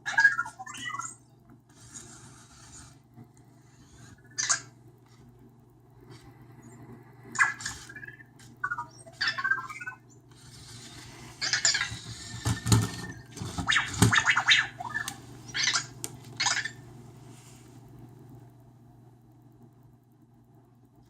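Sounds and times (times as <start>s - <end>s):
steady low hum: 0.0s - 21.0s
robot whirring scratching and clicking: 0.2s - 5.2s, 7.3s - 15.8s.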